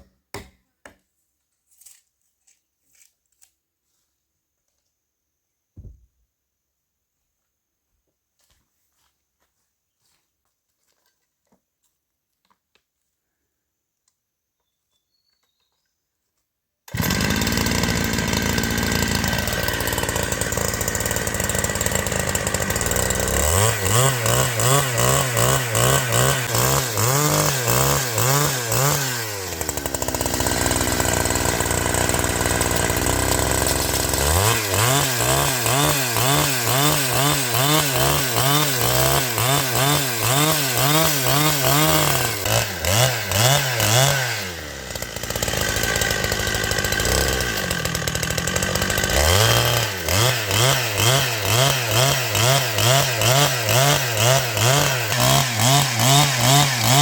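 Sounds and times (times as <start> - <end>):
chainsaw revving and idling: 16.9 - 57.0.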